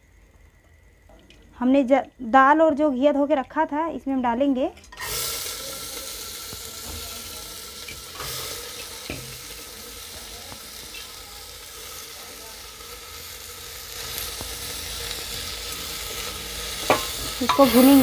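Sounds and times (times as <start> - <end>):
food sizzling in hot oil: 4.8 - 18.0.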